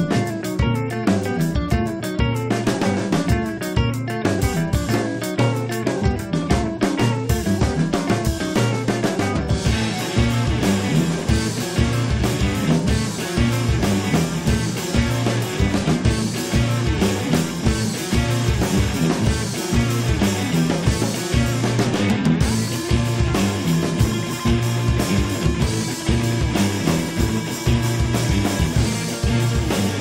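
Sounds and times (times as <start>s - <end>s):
drum kit: 0.0s - 30.0s
electric guitar: 0.0s - 30.0s
repeating bass line: 0.0s - 30.0s.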